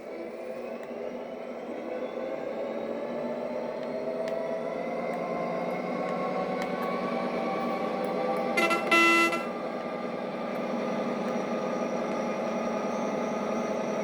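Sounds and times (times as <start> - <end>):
train horn blasts: 8.6 - 9.6.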